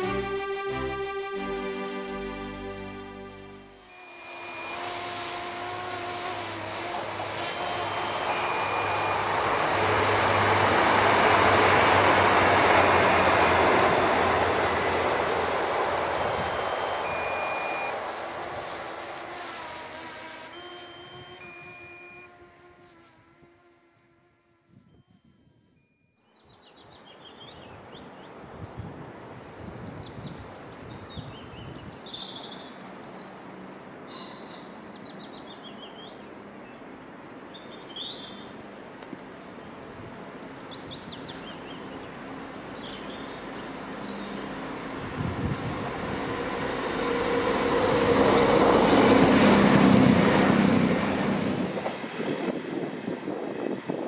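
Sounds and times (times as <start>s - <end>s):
train passing rumble: 0.0s - 23.0s, 37.8s - 54.0s
birds singing: 26.2s - 44.5s.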